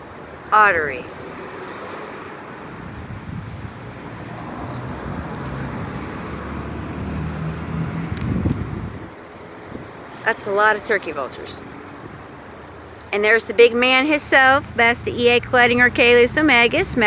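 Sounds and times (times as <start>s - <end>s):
road traffic rumble: 0.0s - 17.0s
vehicle passing: 0.0s - 17.0s
wind noise: 2.4s - 10.2s, 11.6s - 17.0s.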